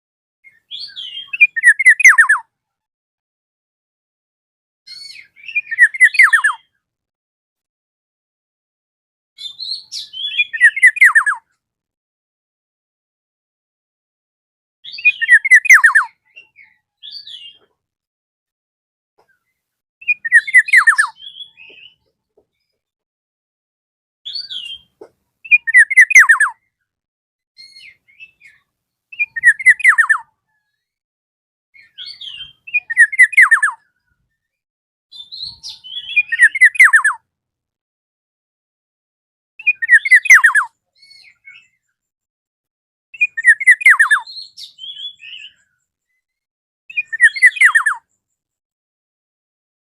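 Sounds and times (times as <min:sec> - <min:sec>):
oriole singing loud call: 0:00.4 - 0:02.5, 0:04.9 - 0:06.8, 0:09.4 - 0:11.6, 0:14.9 - 0:17.7, 0:20.0 - 0:22.1, 0:24.3 - 0:26.7, 0:27.6 - 0:30.6, 0:31.8 - 0:34.0, 0:35.1 - 0:37.2, 0:39.6 - 0:41.9, 0:43.2 - 0:46.2, 0:46.9 - 0:48.2.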